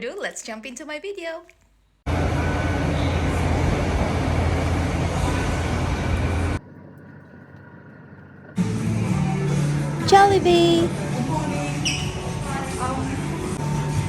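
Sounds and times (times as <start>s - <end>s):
loud traffic rumble: 2.1s - 6.6s.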